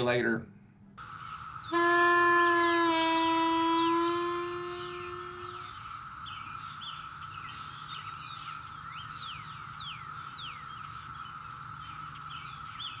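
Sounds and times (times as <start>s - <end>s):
birds chirping: 1.0s - 13.0s
high-pitched drone: 1.7s - 5.8s.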